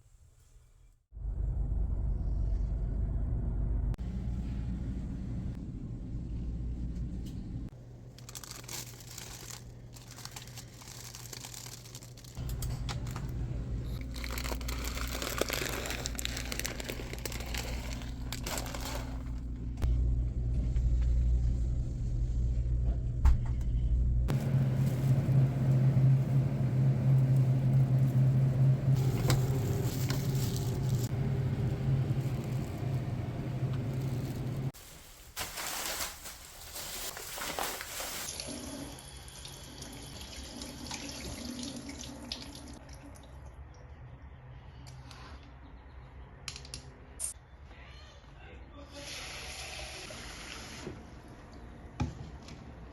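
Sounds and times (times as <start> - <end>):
crackling and crunching: 8.1 - 19.8, 33.6 - 38.3
appliance motor humming: 24.3 - 34.7.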